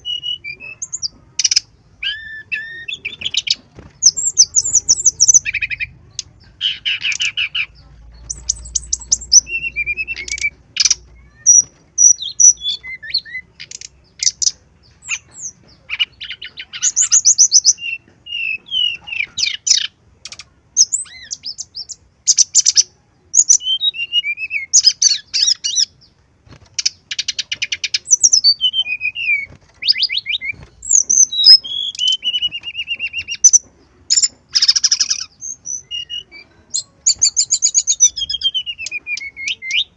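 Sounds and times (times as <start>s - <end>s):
bird singing trills and whistles: 0.0s - 26.1s, 26.8s - 39.9s.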